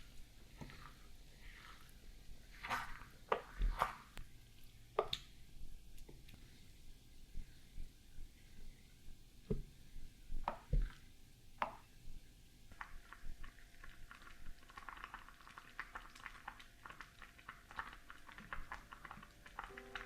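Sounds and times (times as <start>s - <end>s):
wet squishing: 0.0s - 6.5s.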